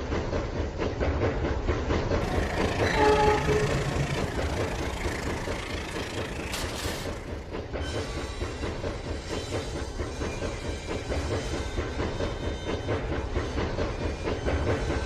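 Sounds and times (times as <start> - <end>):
toy train motor and wheels clattering: 2.2 - 7.5.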